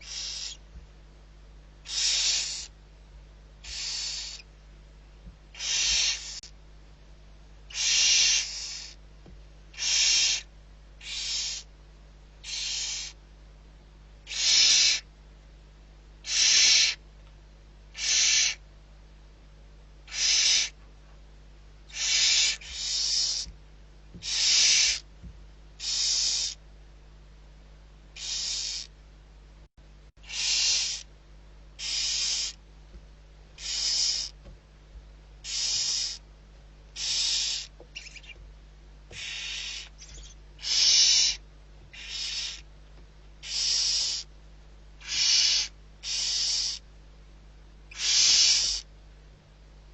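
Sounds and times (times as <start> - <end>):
owl hissing calls: 0.0 - 0.6, 1.8 - 2.8, 3.6 - 4.5, 5.5 - 6.5, 7.7 - 9.0, 9.7 - 11.7, 12.4 - 13.2, 14.2 - 15.1, 16.2 - 17.0, 17.9 - 18.6, 20.1 - 20.8, 21.9 - 23.5, 24.2 - 25.1, 25.8 - 26.6, 28.2 - 28.9, 30.2 - 31.1, 31.8 - 32.6, 33.6 - 34.4, 35.4 - 36.2, 36.9 - 38.4, 39.1 - 42.7, 43.4 - 44.3, 45.0 - 46.8, 47.9 - 48.9.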